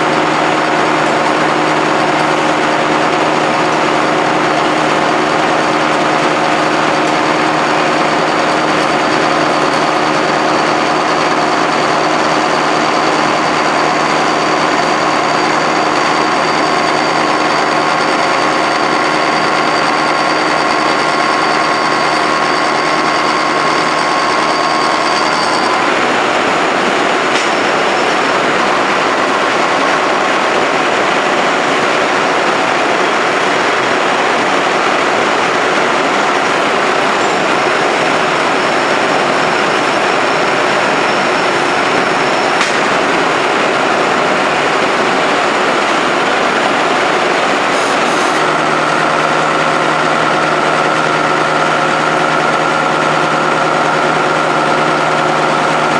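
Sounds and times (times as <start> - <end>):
mechanical hum: 0.0 - 55.9
milling machine gearbox whine: 0.0 - 55.9.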